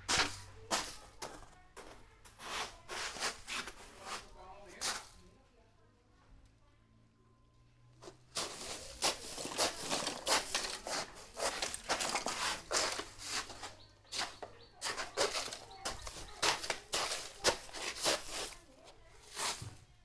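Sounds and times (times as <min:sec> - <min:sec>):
rustling and crackling: 0:08.0 - 0:20.0.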